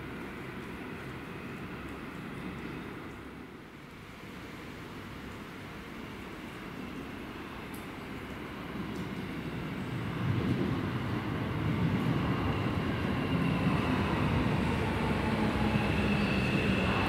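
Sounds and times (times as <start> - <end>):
electric train approaching rumble: 0.0 - 17.0
train braking whine: 13.0 - 17.0.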